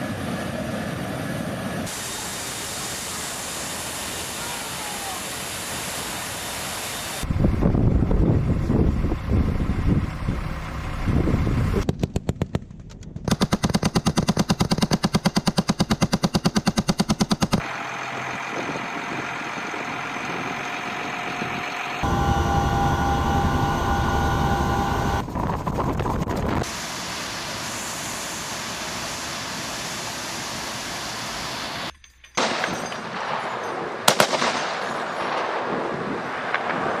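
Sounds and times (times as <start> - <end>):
engine and wind noise: 0.0 - 2.1, 6.4 - 14.9, 17.3 - 37.0
sharp cracks: 11.8 - 17.6, 32.4 - 35.6
machine gun firing: 11.9 - 17.6, 32.4 - 37.0
high whining tone: 17.6 - 29.3.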